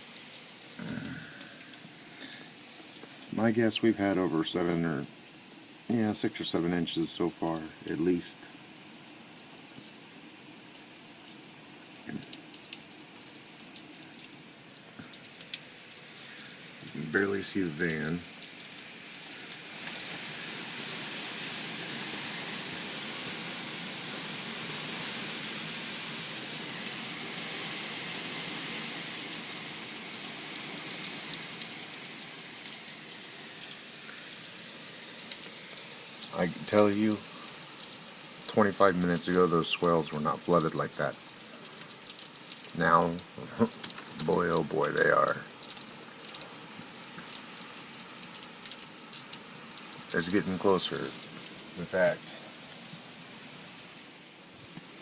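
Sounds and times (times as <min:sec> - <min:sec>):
heavy rain falling: 0:00.0 - 0:55.0
drips and splashes: 0:00.3 - 0:06.0, 0:07.3 - 0:55.0
faint drip ticks: 0:01.3 - 0:03.3, 0:12.0 - 0:17.2, 0:35.3 - 0:51.5.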